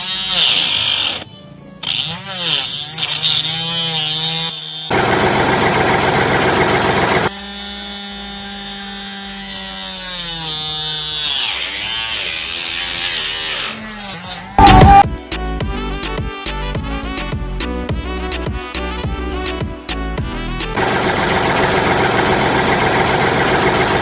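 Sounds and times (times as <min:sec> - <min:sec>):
small motor whirring: 0:00.0 - 0:08.8, 0:10.1 - 0:15.0
harsh sawing noise: 0:00.0 - 0:15.0, 0:20.6 - 0:24.0.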